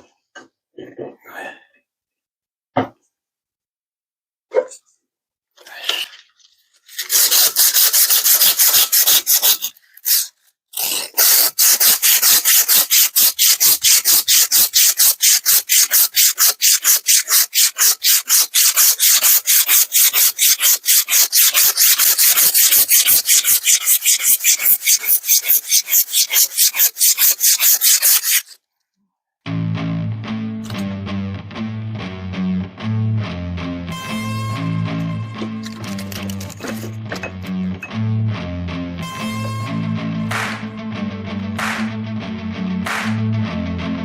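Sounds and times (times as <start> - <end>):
emery cloth rubbing on metal: 11.4 - 28.6.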